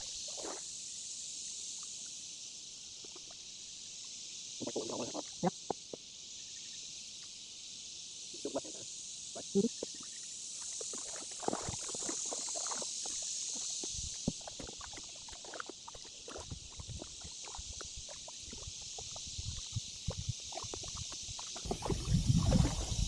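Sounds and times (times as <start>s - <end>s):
paddle splashes and drips: 0.0s - 0.7s, 9.8s - 23.0s
steady high hiss: 0.0s - 23.0s.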